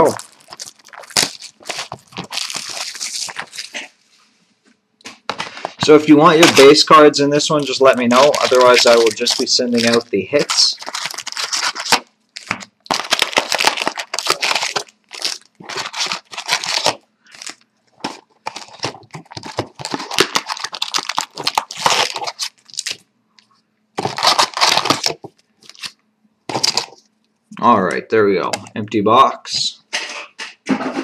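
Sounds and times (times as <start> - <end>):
card pack wrappers ripping: 0.0 - 3.9, 5.4 - 23.0, 24.0 - 27.0.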